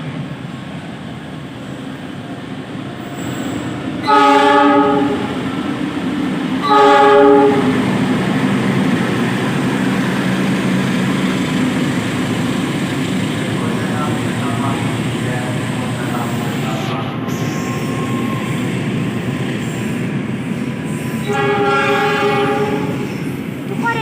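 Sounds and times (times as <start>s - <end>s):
passing train rumble: 0.0s - 24.0s
train horn blasts: 4.0s - 5.4s, 6.6s - 7.8s, 21.2s - 23.1s.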